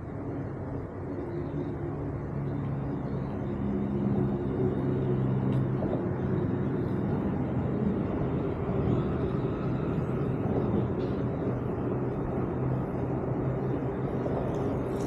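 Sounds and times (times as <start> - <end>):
bike rolling rumble: 0.0 - 15.0
wind on camera: 0.0 - 15.0.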